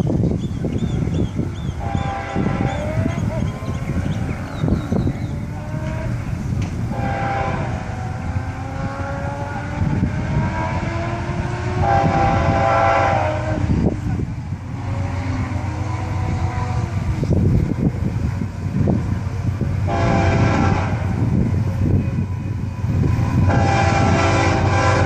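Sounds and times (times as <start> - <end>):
train rumble: 0.0 - 25.0
locomotive horn blasts: 1.8 - 3.4, 6.9 - 9.6, 10.3 - 13.7, 19.8 - 21.3, 22.3 - 25.0.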